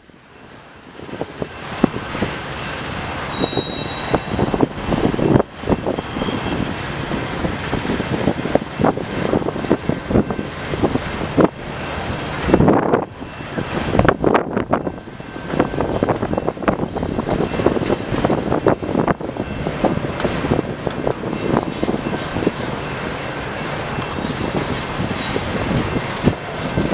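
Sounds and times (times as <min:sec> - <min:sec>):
freight train rumbling past: 0:00.0 - 0:26.9
wheels clacking on rails: 0:00.0 - 0:26.9.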